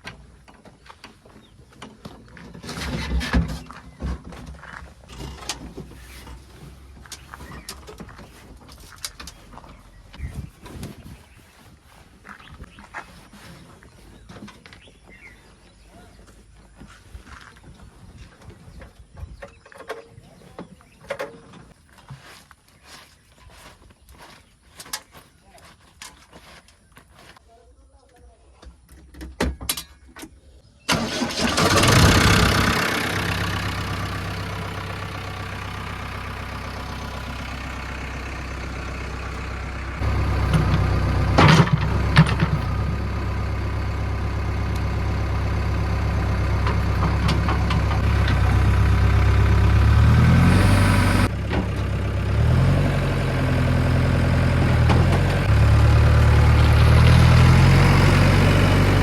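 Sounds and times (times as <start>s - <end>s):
diesel engine starting and revving: 30.9s - 59.0s.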